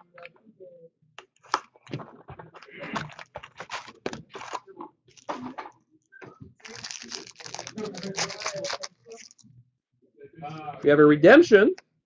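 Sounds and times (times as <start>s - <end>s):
cards and packaging rustling: 1.2s - 5.6s, 6.6s - 9.4s.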